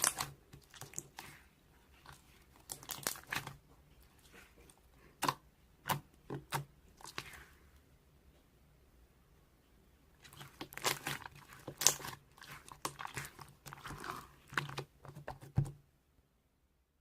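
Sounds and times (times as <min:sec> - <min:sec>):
close crunching and crackling: 0:00.0 - 0:06.0, 0:10.2 - 0:14.9.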